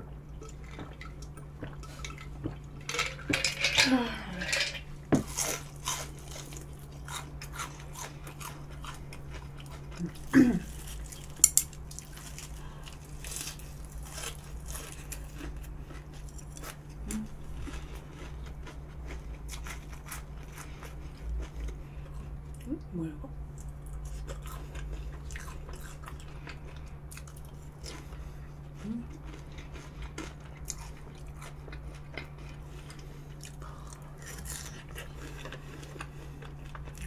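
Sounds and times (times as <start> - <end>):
crunchy chewing of fried snacks: 0.1 - 22.7, 23.4 - 37.0
sharp crunching sounds: 5.1 - 22.2, 23.6 - 37.0.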